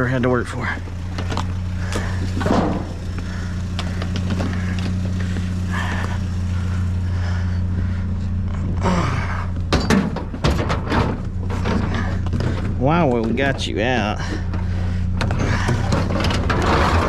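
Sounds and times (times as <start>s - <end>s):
vehicle engine idling: 0.0s - 17.0s
scrap knocking and clattering: 9.6s - 17.0s.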